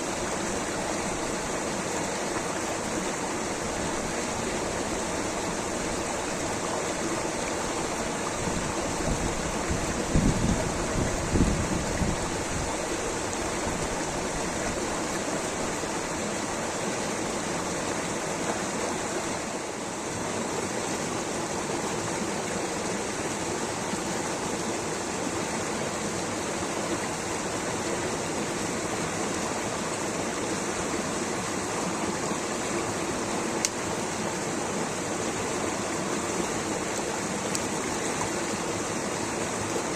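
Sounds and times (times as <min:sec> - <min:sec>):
rushing water: 0:00.0 - 0:39.9
faint click: 0:33.6 - 0:33.8, 0:37.5 - 0:37.7.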